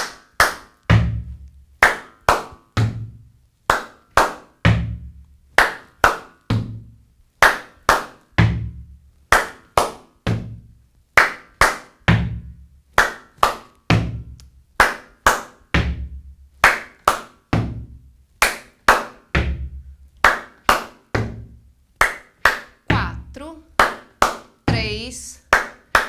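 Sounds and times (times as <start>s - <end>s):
hand claps: 0.0s - 3.1s, 3.7s - 5.0s, 5.6s - 10.6s, 11.2s - 26.0s
slaps on rubber boots: 5.6s - 10.6s, 11.2s - 22.8s.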